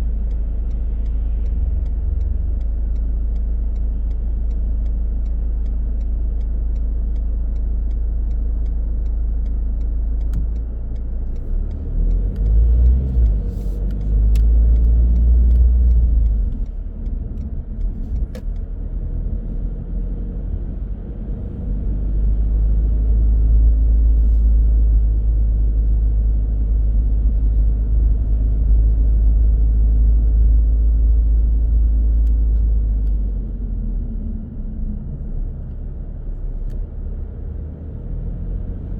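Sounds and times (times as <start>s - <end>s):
faint regular ticking: 0.0s - 20.0s
car engine and tyre rumble: 0.0s - 38.9s.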